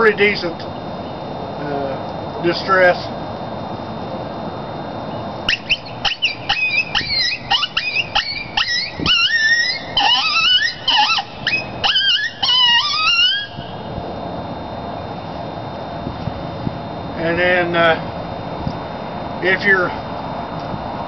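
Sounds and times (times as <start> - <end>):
horn howler yelping cries: 5.5 - 13.8.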